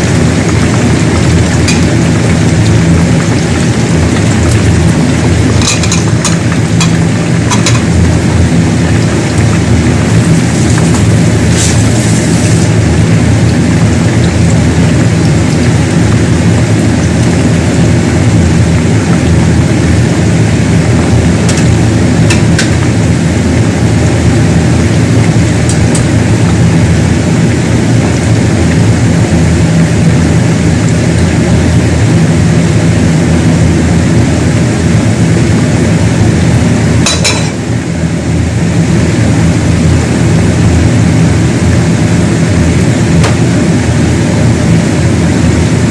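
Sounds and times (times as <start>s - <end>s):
potatoes sizzling in oil: 0.0s - 45.8s.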